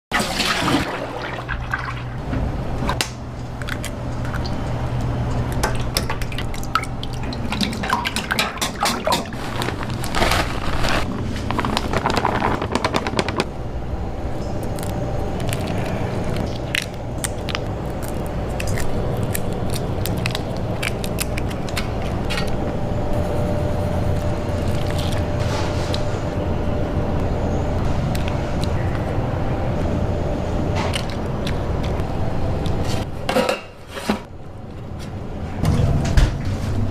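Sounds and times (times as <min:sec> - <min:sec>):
water pouring or splashing: 0:00.1 - 0:02.2, 0:05.6 - 0:09.5
steady low hum: 0:00.9 - 0:36.9.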